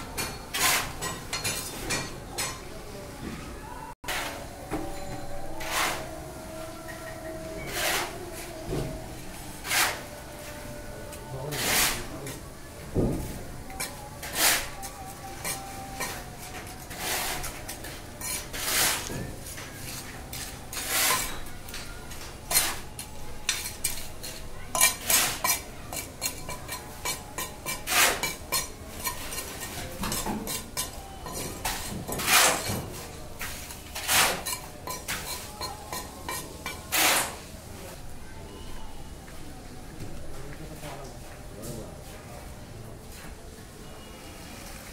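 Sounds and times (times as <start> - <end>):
hand tools scraping and clinking: 0.2 - 2.6, 4.0 - 12.2, 13.6 - 37.5.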